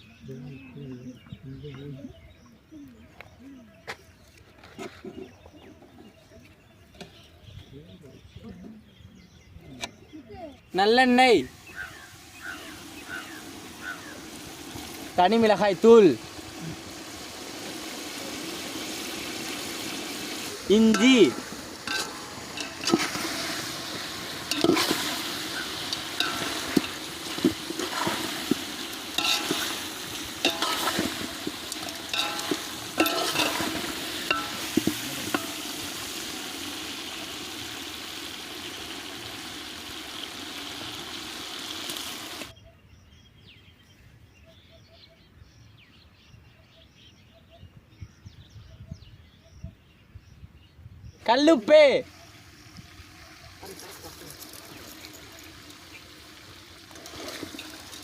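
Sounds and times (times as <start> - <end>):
food sizzling in a pan: 10.8 - 42.5, 51.9 - 58.0
ladle clacking against pan: 20.9 - 23.6, 24.4 - 35.8.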